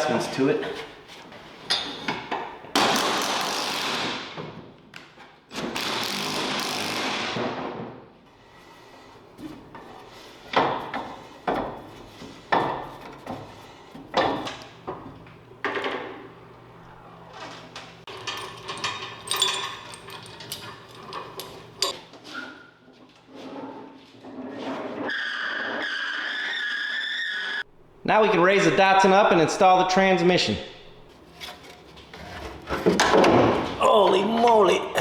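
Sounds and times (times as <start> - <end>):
knocks and clanks on metal: 9.4 - 16.4, 17.4 - 22.0, 30.8 - 34.6
hand tools scraping metal: 17.5 - 22.0, 30.8 - 33.3.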